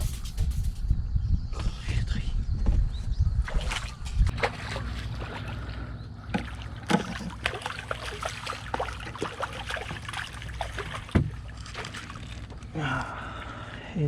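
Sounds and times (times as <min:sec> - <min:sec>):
water sloshing around boat: 0:03.4 - 0:14.0.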